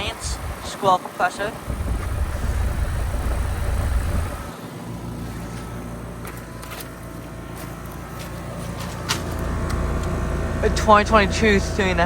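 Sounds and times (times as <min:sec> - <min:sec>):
heat pump compressor and fan hum: 0:00.0 - 0:12.0
low rumble: 0:01.7 - 0:04.5.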